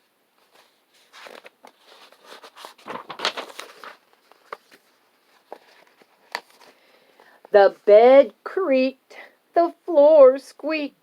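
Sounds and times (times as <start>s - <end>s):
paper page turning: 0.4s - 6.8s.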